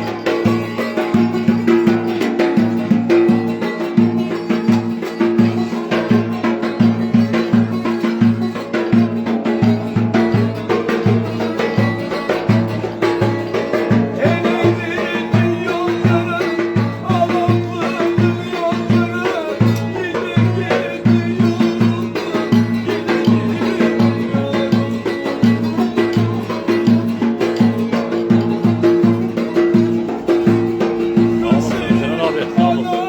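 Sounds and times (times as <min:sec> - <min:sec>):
driving drum beat: 0:00.0 - 0:33.0
folk dance tune: 0:28.5 - 0:33.0.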